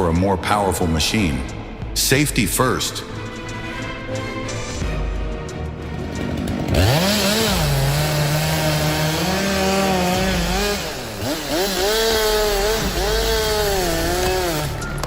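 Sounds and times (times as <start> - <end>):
background music: 0.0 - 15.0
chainsaw revving: 5.8 - 15.0.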